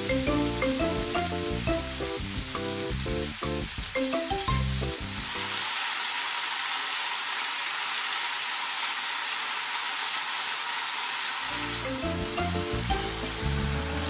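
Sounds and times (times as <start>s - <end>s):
background music: 0.0s - 5.5s, 11.5s - 14.0s
meat sizzling in a frying pan: 0.0s - 14.0s.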